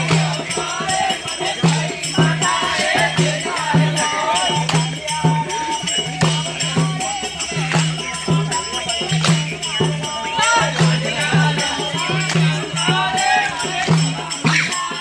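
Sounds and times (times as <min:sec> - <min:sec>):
jingling rattle percussion: 0:00.0 - 0:15.0
steady drum beat: 0:00.0 - 0:15.0
voices singing folk song: 0:00.0 - 0:15.0.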